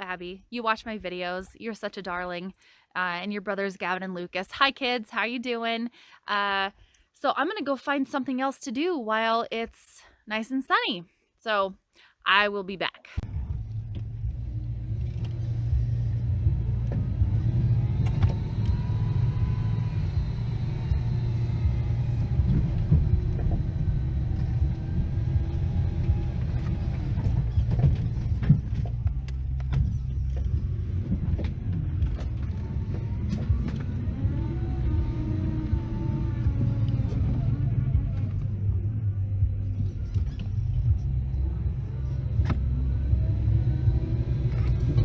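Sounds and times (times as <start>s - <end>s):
engine whine: 13.2s - 45.0s
vehicle engine rumbling: 13.2s - 45.0s.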